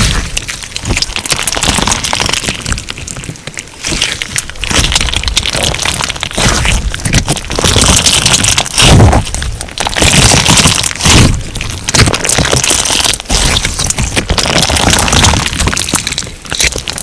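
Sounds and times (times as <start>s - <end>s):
slime crackling and popping: 0.0s - 17.0s.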